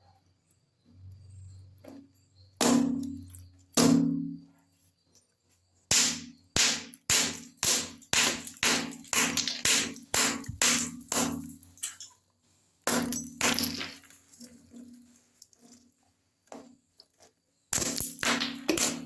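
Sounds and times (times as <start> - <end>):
sharp ringing knocks: 2.6 - 4.5.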